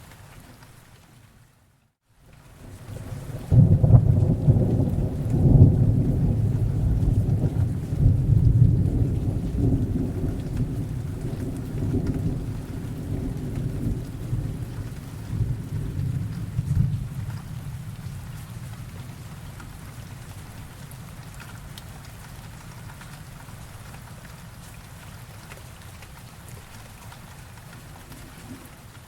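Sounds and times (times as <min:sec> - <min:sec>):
steady rain: 0:00.0 - 0:29.0
rolling thunder rumble: 0:02.7 - 0:20.6.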